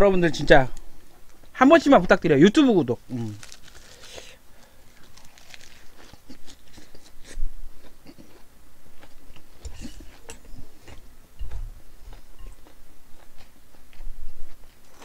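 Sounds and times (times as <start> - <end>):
person chewing food: 3.2 - 15.0.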